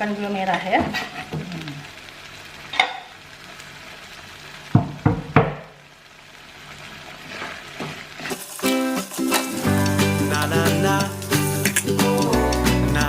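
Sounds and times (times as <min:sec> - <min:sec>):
spice paste sizzling in a pan: 0:00.0 - 0:13.0
utensil knocking against pan: 0:04.8 - 0:05.7
music: 0:08.4 - 0:13.0.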